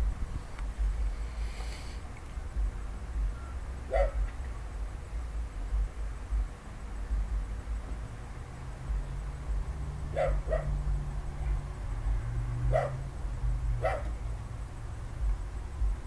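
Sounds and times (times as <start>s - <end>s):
low steady hum: 0.0s - 16.0s
dog barking: 3.9s - 4.2s, 10.1s - 10.7s, 12.7s - 13.0s, 13.8s - 14.1s.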